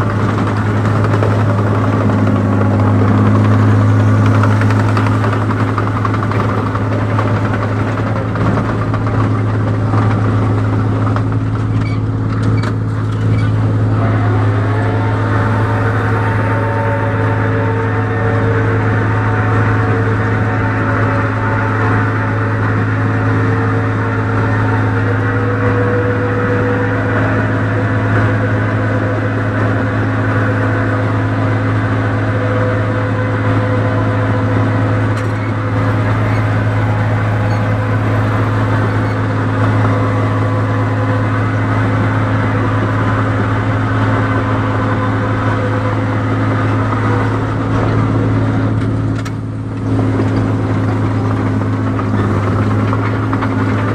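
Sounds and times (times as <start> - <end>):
combine harvester engine humming: 0.0 - 53.9.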